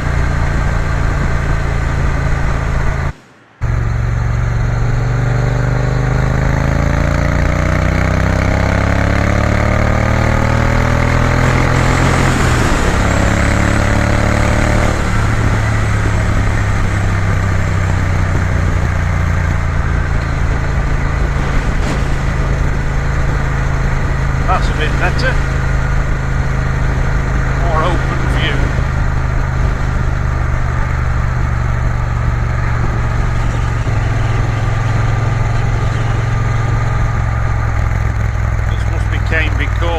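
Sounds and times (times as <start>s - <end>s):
motorcycle engine accelerating: 0.0s - 39.9s
wind rushing past: 0.1s - 7.3s.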